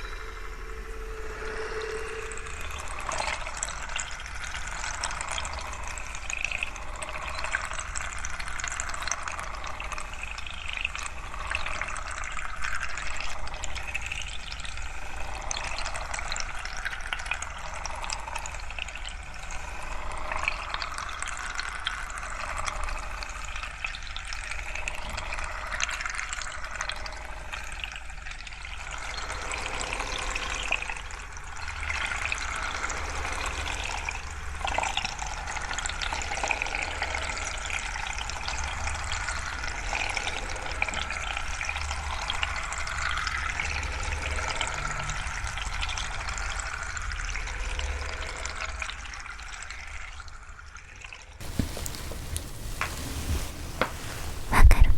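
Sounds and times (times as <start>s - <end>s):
fine crackling: 51.4s - 54.9s.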